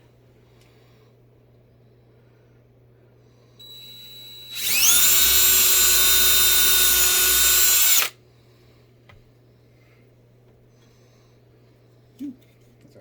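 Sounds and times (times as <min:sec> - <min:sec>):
electric drill whining: 0:03.6 - 0:08.1.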